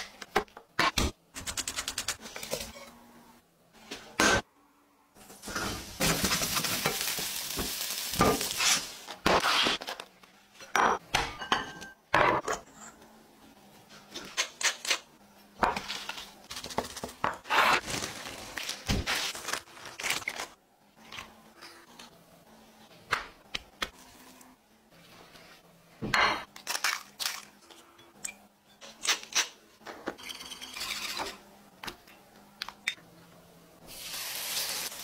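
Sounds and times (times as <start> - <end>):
onion sizzling in oil: 5.4 - 9.0, 33.9 - 35.0.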